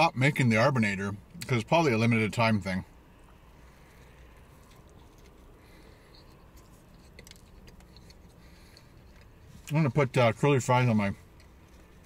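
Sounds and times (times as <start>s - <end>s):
low steady hum: 0.0s - 12.0s
man chewing food: 3.2s - 9.7s, 11.2s - 12.0s.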